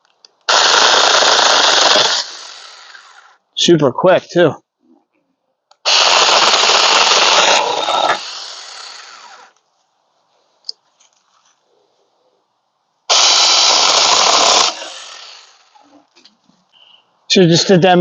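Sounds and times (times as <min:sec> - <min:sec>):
mini chainsaw running: 0:00.5 - 0:03.4, 0:05.9 - 0:09.5, 0:13.1 - 0:15.8.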